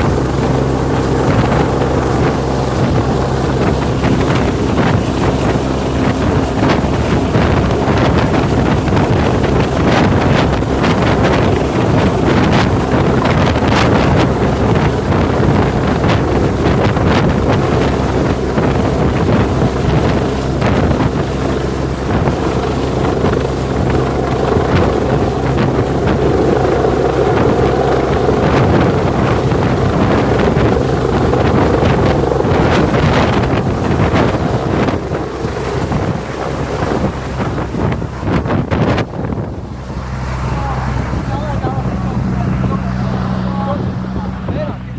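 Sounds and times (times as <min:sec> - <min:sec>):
helicopter flying low overhead: 0:00.0 - 0:44.9
wind buffeting microphone: 0:00.0 - 0:44.9.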